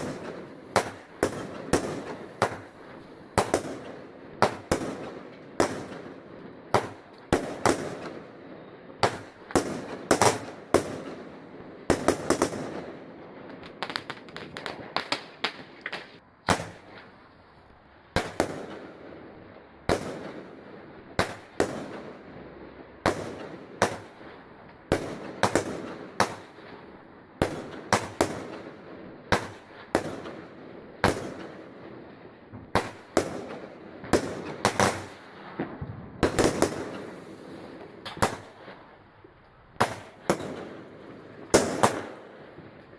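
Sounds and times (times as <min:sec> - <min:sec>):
fireworks banging: 0:00.0 - 0:06.2, 0:32.5 - 0:38.9, 0:39.8 - 0:42.2.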